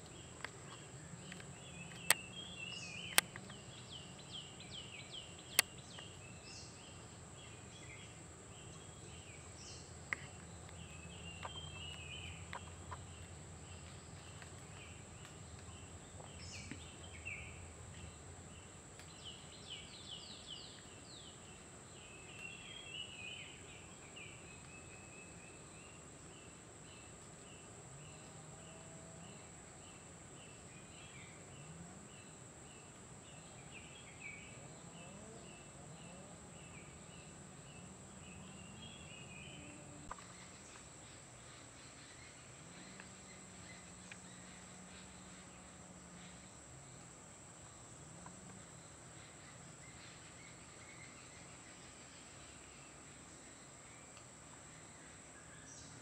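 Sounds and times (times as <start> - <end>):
faint ticks: 0.0 - 6.2, 10.0 - 17.1, 40.0 - 45.5, 54.0 - 54.8.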